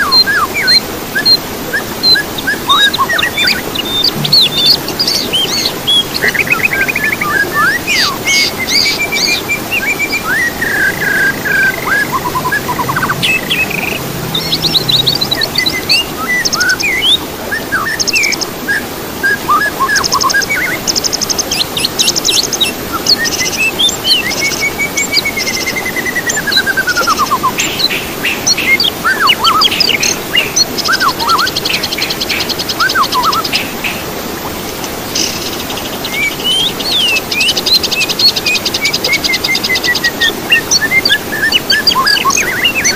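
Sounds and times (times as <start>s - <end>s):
songbirds singing: 0.0s - 42.9s
steady low hiss: 0.6s - 7.2s.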